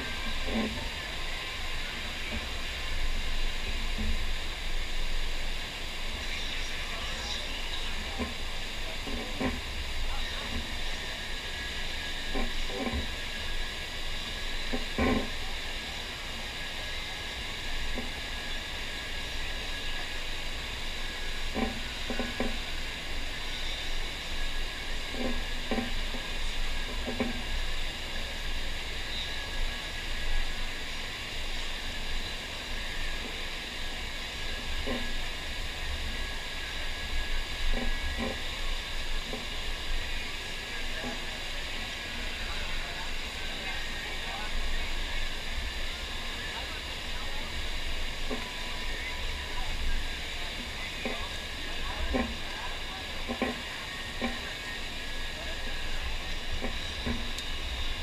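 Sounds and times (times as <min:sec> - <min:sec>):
rushing pumped water: 0:00.0 - 0:58.0.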